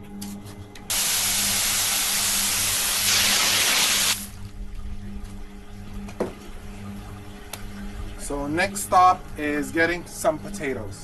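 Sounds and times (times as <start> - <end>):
water running hard: 0.9 - 4.3.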